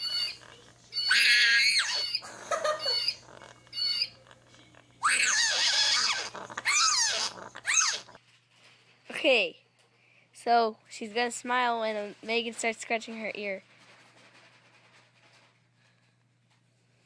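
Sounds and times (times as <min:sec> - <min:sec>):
animal squeals bending in pitch: 0:00.0 - 0:00.4, 0:01.0 - 0:02.2, 0:02.8 - 0:03.2, 0:03.8 - 0:04.2, 0:05.0 - 0:08.2
animal high-pitched chirps: 0:00.0 - 0:02.2, 0:02.8 - 0:04.2, 0:05.0 - 0:08.1.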